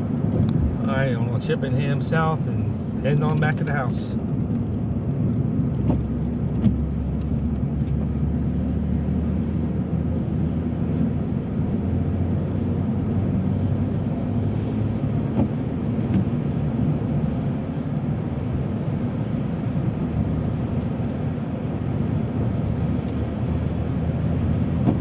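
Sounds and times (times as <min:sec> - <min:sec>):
car driving heard from inside: 0:00.0 - 0:25.0.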